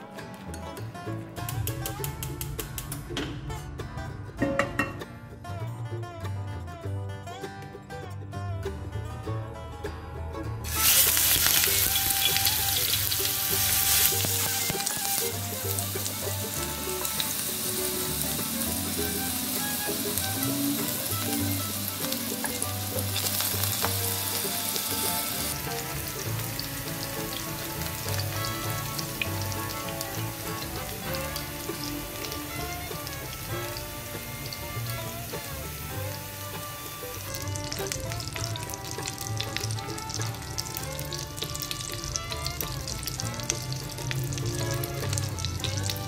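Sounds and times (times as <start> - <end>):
background music: 0.0 - 46.0
food sizzling in hot oil: 10.7 - 46.0.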